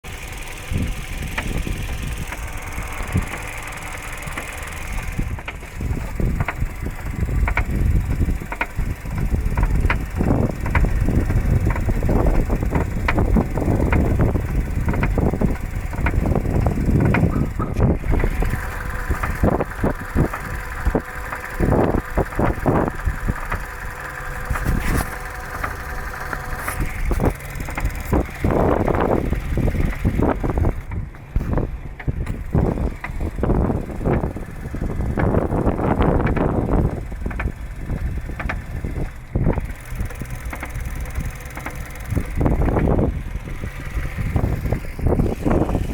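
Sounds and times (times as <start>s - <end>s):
car engine rumble: 0.0s - 45.9s
engine knocking: 0.0s - 45.9s
wind on microphone: 4.9s - 41.4s, 42.0s - 45.9s.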